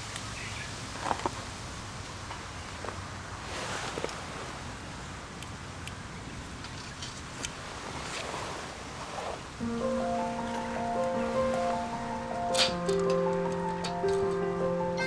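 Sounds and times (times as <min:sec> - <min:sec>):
outdoor ambient noise: 0:00.0 - 0:15.0
soft rustles: 0:02.8 - 0:04.8, 0:06.6 - 0:15.0
light ticks: 0:05.4 - 0:07.6, 0:10.2 - 0:15.0
music: 0:09.6 - 0:15.0.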